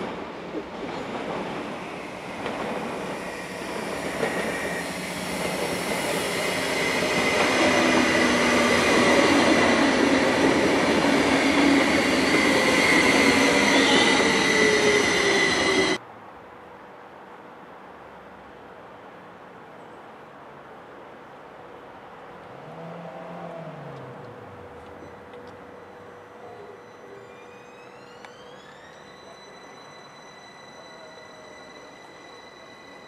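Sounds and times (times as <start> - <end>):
train running past: 0.0 - 16.0, 22.5 - 33.0
high wheel squeal: 2.9 - 10.2, 10.8 - 16.0, 24.8 - 33.0.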